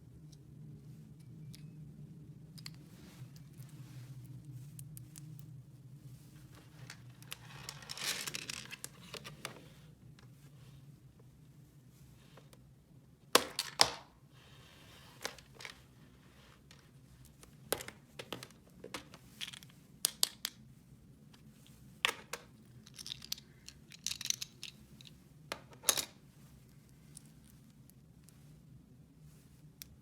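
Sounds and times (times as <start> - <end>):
plastic toy pieces clicking: 22.9 - 24.8.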